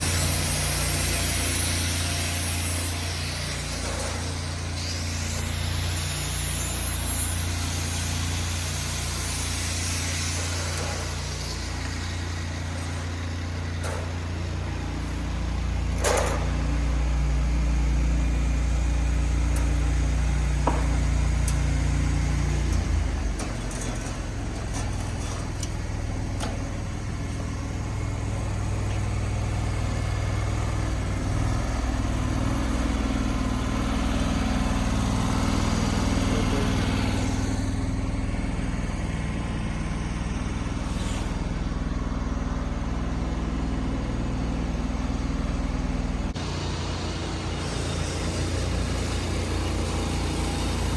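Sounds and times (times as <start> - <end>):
engine running steadily: 0.0 - 50.9.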